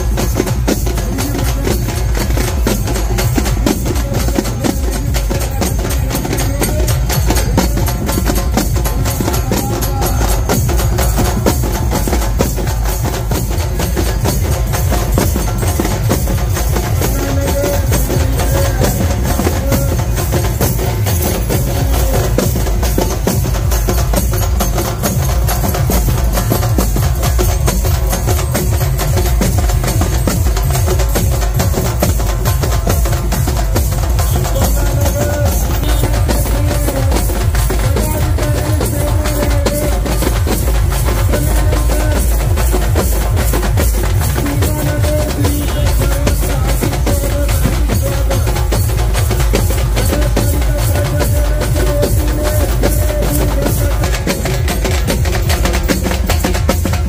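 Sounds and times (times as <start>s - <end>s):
fast frame drum beating: 0.0s - 57.0s.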